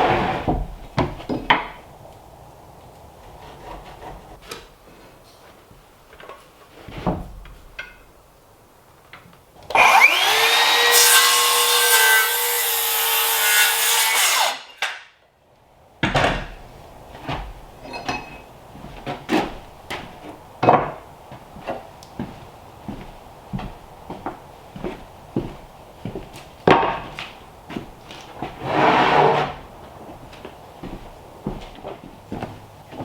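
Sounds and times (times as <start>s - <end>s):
wood knocking and clattering: 0.4s - 1.8s, 16.0s - 25.5s, 26.1s - 27.9s
electric saw cutting wood: 9.7s - 14.8s.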